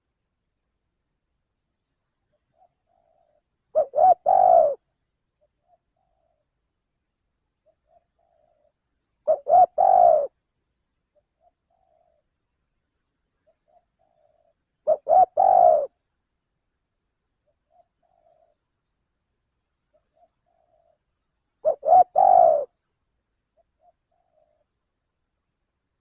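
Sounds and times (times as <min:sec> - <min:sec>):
faint soft bird notes: 0:00.7 - 0:26.0
dove cooing: 0:02.5 - 0:06.5, 0:07.6 - 0:10.4, 0:11.2 - 0:12.3, 0:13.4 - 0:16.0, 0:17.4 - 0:18.6, 0:19.9 - 0:22.8, 0:23.6 - 0:24.8.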